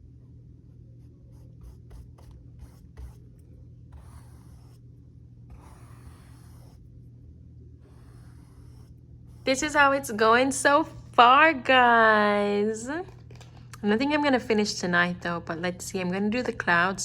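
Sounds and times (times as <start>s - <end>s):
faint low hum: 0.0s - 17.0s
drawing tool scratching on paper: 1.2s - 6.9s, 7.8s - 9.8s
rubbing strokes on paper: 1.3s - 3.3s, 3.9s - 4.8s, 5.5s - 6.9s, 7.8s - 9.8s.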